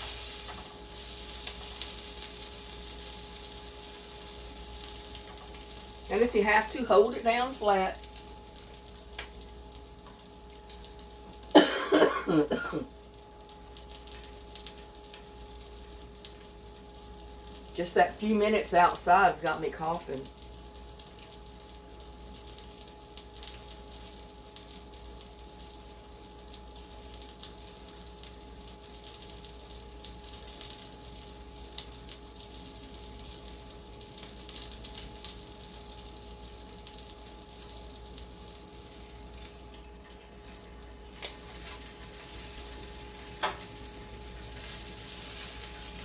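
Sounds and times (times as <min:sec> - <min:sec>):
sausage sizzling in a frying pan: 0:00.0 - 0:46.0.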